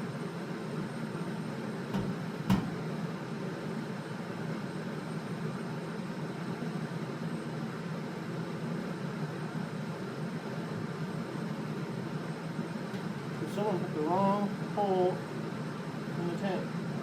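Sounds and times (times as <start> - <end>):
steady mechanical hum: 0.0 - 17.0
short metallic knocks: 2.0 - 2.9.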